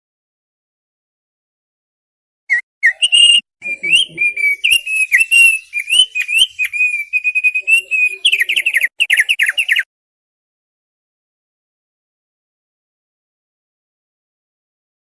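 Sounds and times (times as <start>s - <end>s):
bird singing whistled notes: 2.5s - 9.9s.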